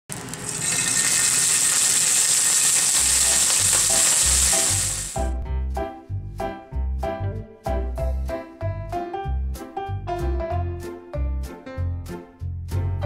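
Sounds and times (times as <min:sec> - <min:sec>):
shallots sizzling in oil: 0:00.1 - 0:05.3.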